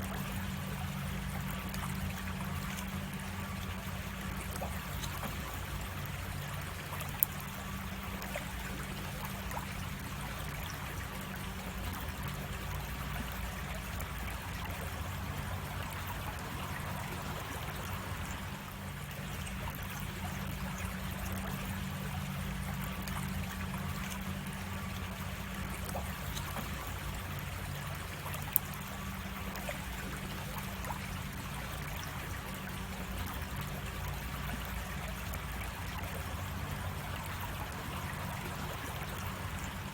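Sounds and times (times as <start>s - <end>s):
creek water trickling: 0.0s - 39.9s.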